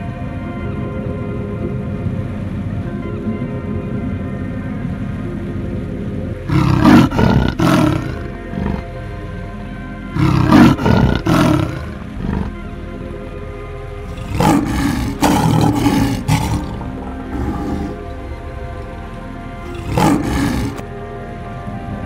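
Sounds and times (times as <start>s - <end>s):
background music sustained notes: 0.0s - 22.0s
big cat roaring: 6.4s - 9.1s, 10.1s - 12.6s, 14.0s - 20.8s.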